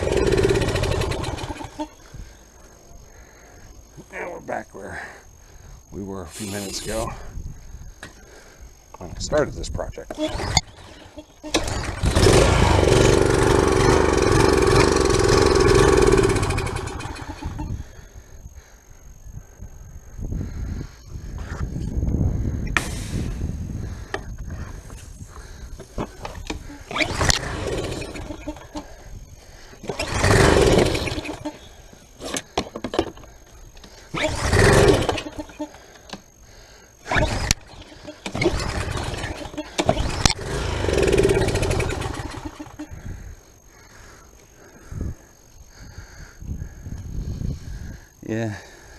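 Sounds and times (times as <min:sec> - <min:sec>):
small engine starting and dying: 0:00.0 - 0:01.9, 0:10.2 - 0:17.7, 0:26.4 - 0:28.9, 0:29.8 - 0:31.6, 0:34.1 - 0:35.7, 0:37.0 - 0:42.9.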